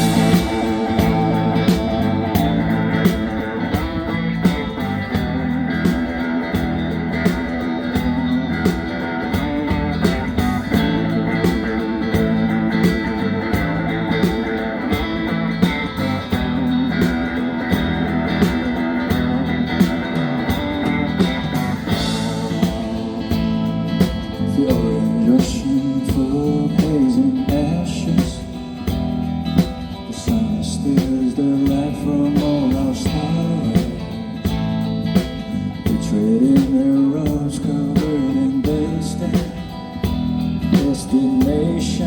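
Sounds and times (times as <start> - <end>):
person singing: 0.0 - 3.9, 21.6 - 28.6, 30.0 - 34.3, 40.6 - 42.0
drum beat: 0.0 - 41.7
guitar: 0.0 - 42.0
live band playing: 0.0 - 42.0.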